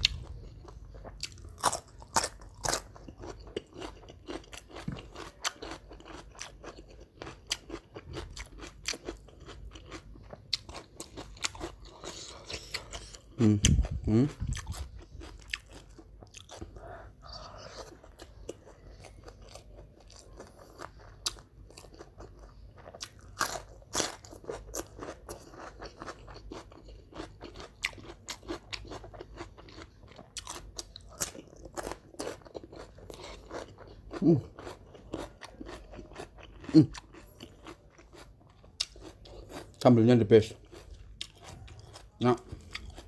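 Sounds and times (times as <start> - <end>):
crisp crunching and chewing: 0.0 - 43.0.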